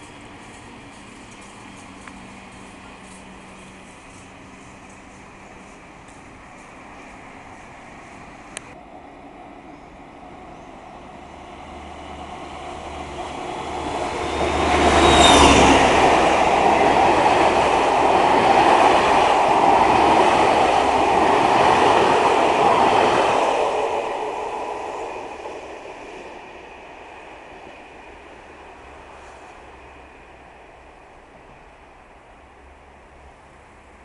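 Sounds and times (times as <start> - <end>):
passenger train passing: 0.0 - 34.0.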